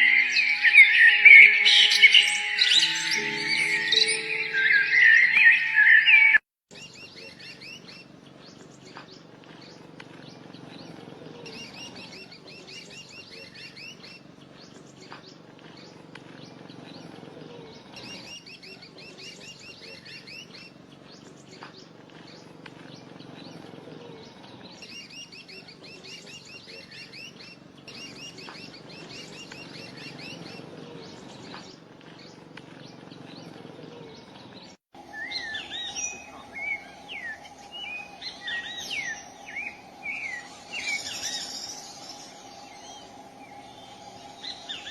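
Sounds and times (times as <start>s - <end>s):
songbird chirping: 0.0s - 44.9s
faint low hum: 35.0s - 44.9s.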